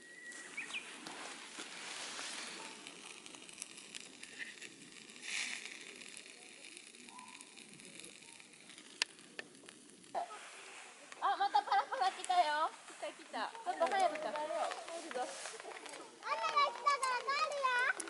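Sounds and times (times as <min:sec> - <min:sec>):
campfire crackling: 0:00.0 - 0:18.0
fire pops: 0:00.0 - 0:18.0.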